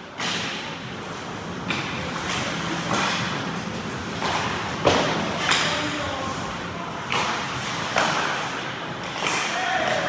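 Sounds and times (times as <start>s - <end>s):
stick and puck clatter: 0.2s - 0.7s, 1.6s - 6.0s, 7.0s - 10.0s
skate blades scraping ice: 7.0s - 10.0s.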